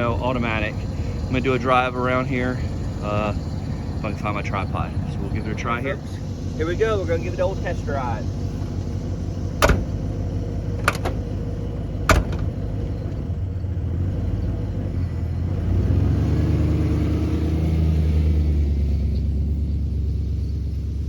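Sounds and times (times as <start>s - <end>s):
pickup truck engine running: 0.0s - 21.0s
sharp knocks: 9.6s - 10.0s, 12.1s - 12.6s.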